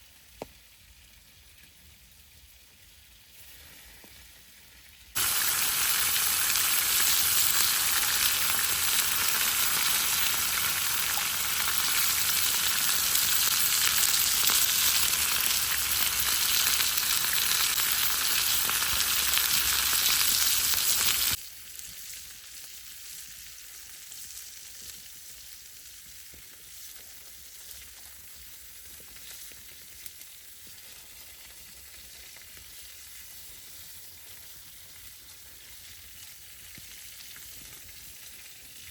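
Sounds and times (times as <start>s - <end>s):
small popping in pan: 5.2s - 25.6s
food sizzling in a pan: 5.2s - 38.9s.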